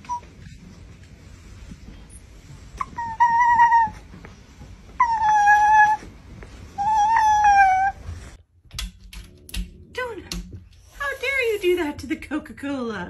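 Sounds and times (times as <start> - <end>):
dog whining: 0.0 - 0.6, 2.7 - 4.2, 5.0 - 8.4.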